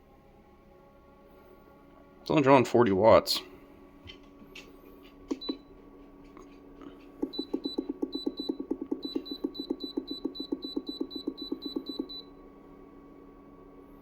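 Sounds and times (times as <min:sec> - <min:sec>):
faint steady hum: 0:00.0 - 0:14.0
fridge control panel beeping: 0:05.3 - 0:05.6, 0:07.2 - 0:12.3.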